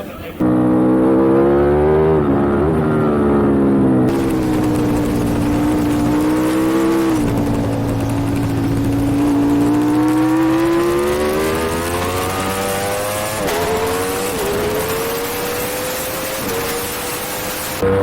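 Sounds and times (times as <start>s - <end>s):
gear upshifts: 4.1s - 17.9s
superbike engine pulling hard: 4.1s - 17.9s.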